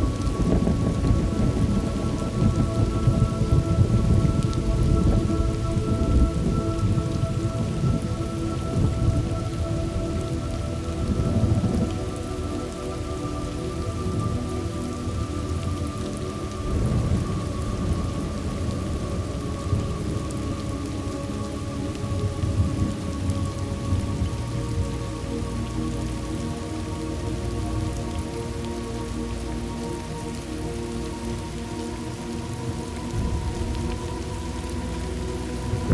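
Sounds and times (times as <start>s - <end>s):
low rolling thunder: 0.0s - 12.2s, 16.6s - 20.7s, 33.1s - 34.6s, 35.6s - 35.9s
heavy rain: 0.0s - 35.9s.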